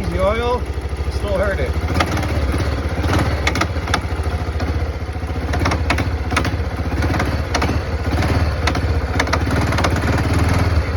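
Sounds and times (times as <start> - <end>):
engine idling: 0.0 - 10.9
sharp engine knocks: 1.9 - 4.8, 5.4 - 10.3.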